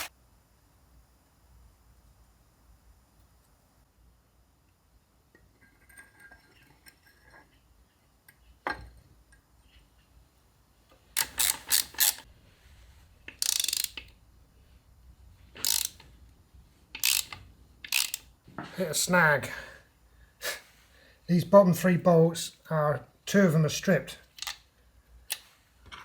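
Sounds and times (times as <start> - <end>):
ratchet wrench clicking: 11.2 - 12.3, 13.3 - 14.2, 15.6 - 16.1, 17.0 - 18.3, 24.3 - 24.6.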